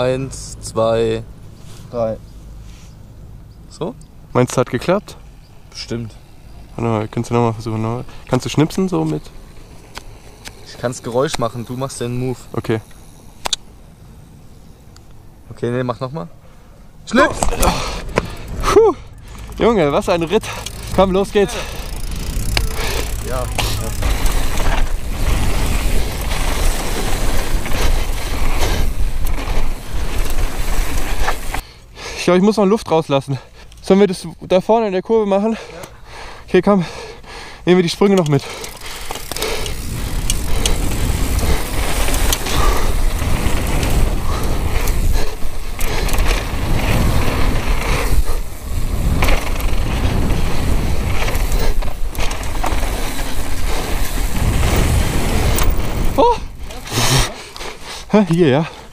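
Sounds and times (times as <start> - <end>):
bike rattling: 0.0 - 58.9
bike tyres on dirt: 0.0 - 58.9
chain and frame rattling: 17.6 - 28.8
wind rumbling on microphone: 20.8 - 31.6, 38.8 - 57.7.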